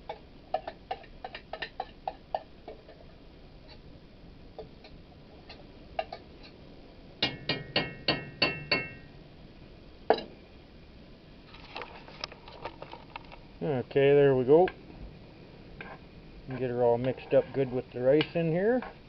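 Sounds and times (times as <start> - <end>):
utensil knocking metal pot: 7.2 - 9.0.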